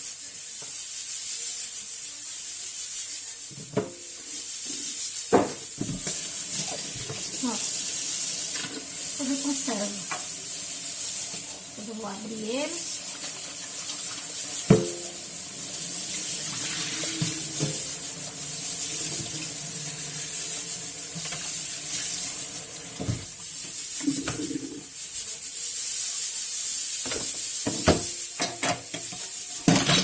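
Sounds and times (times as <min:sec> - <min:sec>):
water running from a tap: 0:00.0 - 0:30.0
things clattering in a sink: 0:05.3 - 0:07.7, 0:08.4 - 0:08.9, 0:13.1 - 0:15.2, 0:16.1 - 0:18.1, 0:21.1 - 0:22.1, 0:22.8 - 0:24.7, 0:27.0 - 0:30.0.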